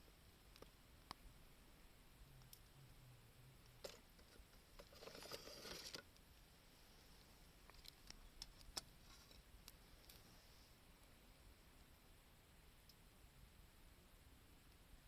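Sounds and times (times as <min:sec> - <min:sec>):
campfire crackling: 0:00.0 - 0:06.5, 0:07.1 - 0:11.1
soft rush of noise: 0:00.0 - 0:15.0.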